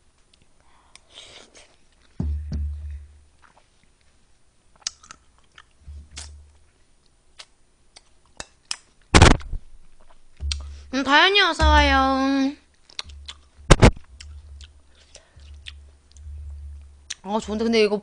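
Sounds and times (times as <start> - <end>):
low thumps: 2.2 - 3.4, 5.8 - 6.6, 9.2 - 17.9
person chewing: 3.4 - 4.1, 4.7 - 6.4, 7.4 - 9.0, 12.7 - 17.2.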